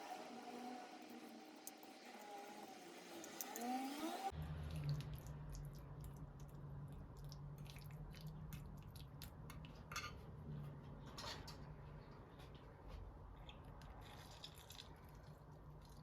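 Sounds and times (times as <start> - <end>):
dishes and utensils clinking: 9.9 - 10.2.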